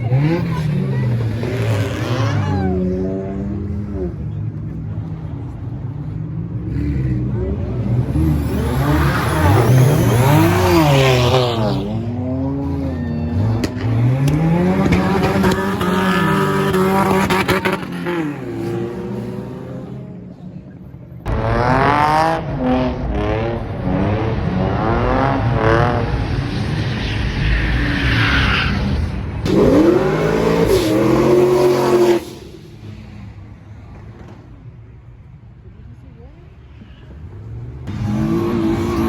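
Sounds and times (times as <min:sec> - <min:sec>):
car engines revving hard: 0:00.0 - 0:35.2, 0:36.6 - 0:39.0
tire squeal: 0:08.1 - 0:18.4, 0:26.0 - 0:33.2.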